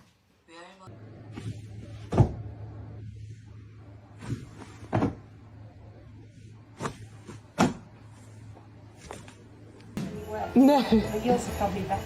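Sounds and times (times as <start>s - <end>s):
steady low hum: 0.9s - 10.3s.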